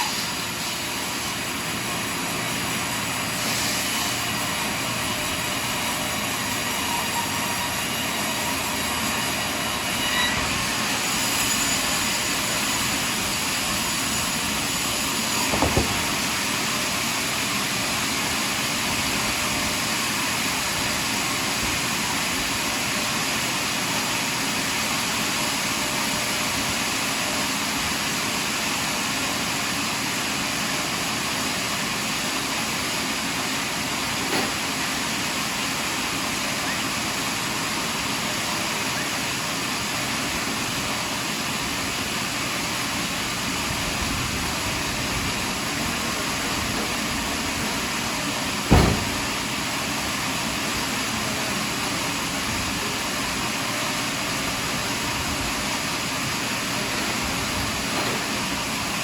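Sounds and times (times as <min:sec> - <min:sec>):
sawmill cutting a log: 0:00.0 - 0:59.0
short knock: 0:15.5 - 0:16.2, 0:48.7 - 0:49.2.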